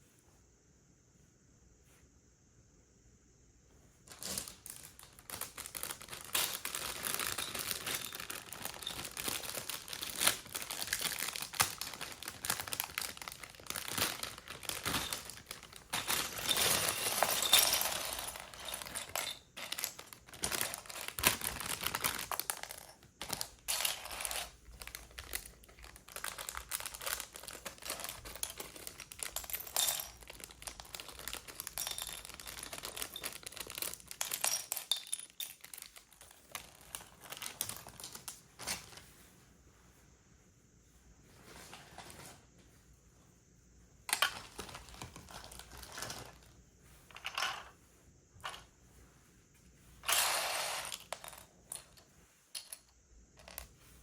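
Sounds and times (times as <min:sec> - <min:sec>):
plastic pieces clicking and rattling: 0:04.1 - 0:38.9, 0:44.1 - 0:46.4, 0:50.0 - 0:53.7
plastic bag crinkling: 0:04.1 - 0:39.0, 0:44.1 - 0:46.5.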